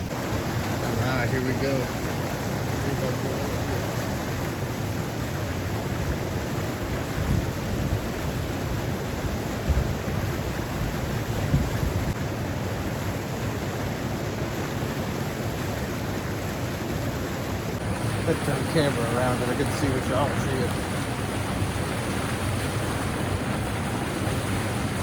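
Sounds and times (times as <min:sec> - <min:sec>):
stream flowing: 0:00.0 - 0:25.0
wind buffeting microphone: 0:17.8 - 0:25.0.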